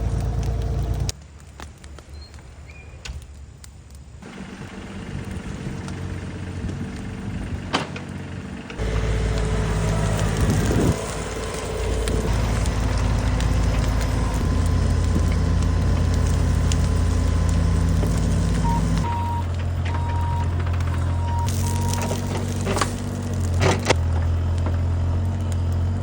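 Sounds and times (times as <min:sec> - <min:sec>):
heavy machine engine running: 0:00.0 - 0:01.1, 0:04.2 - 0:26.0
wood snapping and crackling: 0:00.0 - 0:26.0.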